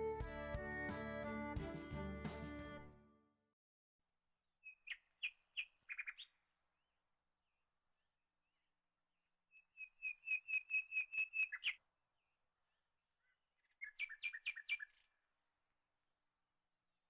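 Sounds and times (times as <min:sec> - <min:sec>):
bird whistling song: 0:04.6 - 0:06.3, 0:09.5 - 0:11.8, 0:13.6 - 0:15.0.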